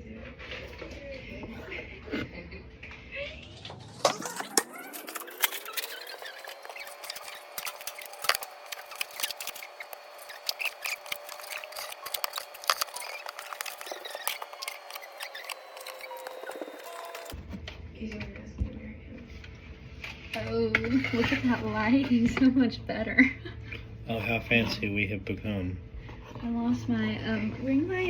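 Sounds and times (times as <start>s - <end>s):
steady whine: 2.8s - 17.4s.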